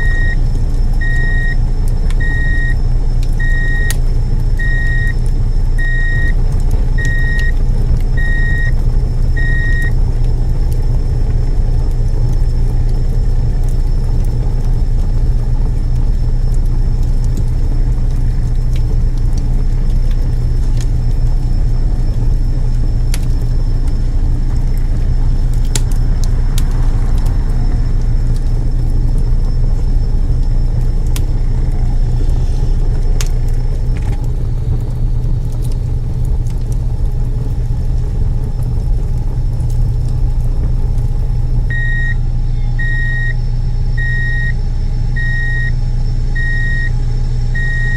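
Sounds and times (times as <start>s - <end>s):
reversing beeps: 0.0s - 0.4s, 1.0s - 1.6s, 2.2s - 2.8s, 3.4s - 4.0s, 4.6s - 5.2s, 5.8s - 6.4s, 7.0s - 7.6s, 8.2s - 8.8s, 9.4s - 10.0s, 41.7s - 42.2s, 42.8s - 43.4s, 44.0s - 44.6s, 45.2s - 45.8s, 46.4s - 47.9s
truck engine rumbling: 0.0s - 47.9s.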